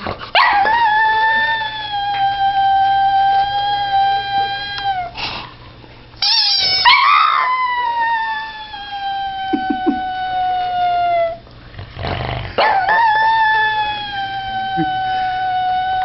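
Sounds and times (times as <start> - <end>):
dog howling: 0.4 - 5.2, 6.6 - 11.4, 12.6 - 16.0
dog squealing: 6.2 - 11.4.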